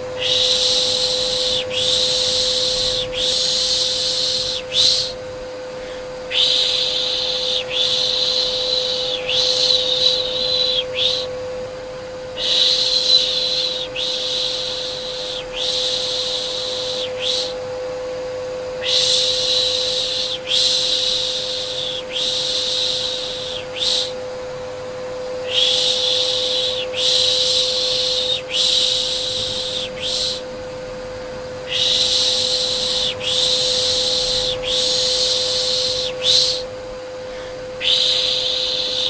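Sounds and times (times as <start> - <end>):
vacuum cleaner motor hum: 0.0 - 39.0
person shushing: 5.8 - 11.3, 12.4 - 17.6, 18.8 - 24.2, 25.4 - 30.5, 31.6 - 36.7, 37.3 - 39.0.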